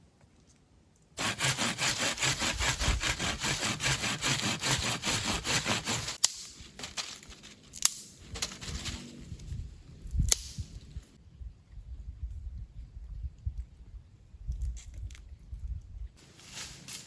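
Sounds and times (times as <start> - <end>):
hand saw cutting wood: 1.2 - 6.3
sharp wood crack: 1.2 - 8.6, 10.2 - 10.7.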